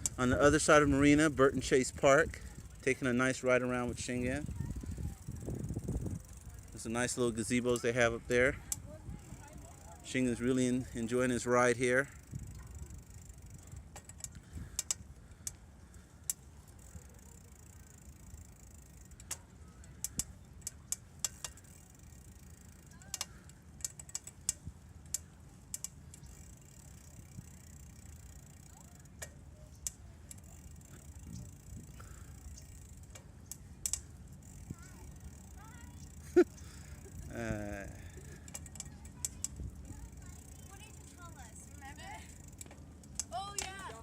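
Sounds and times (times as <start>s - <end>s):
bicycle clicks and rattles: 0.0s - 44.0s
bicycle rolling rumble: 0.0s - 44.0s.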